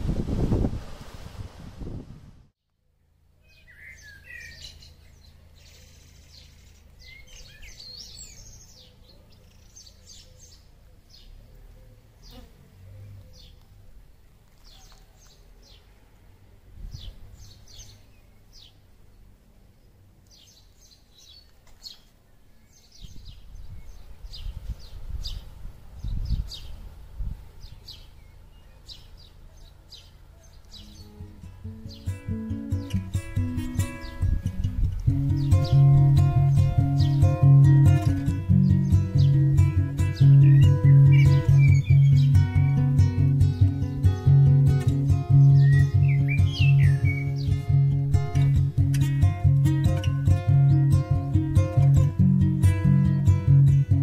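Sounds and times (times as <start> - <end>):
small birds chirping: 3.0 - 54.0
low outdoor rumble: 23.1 - 54.0.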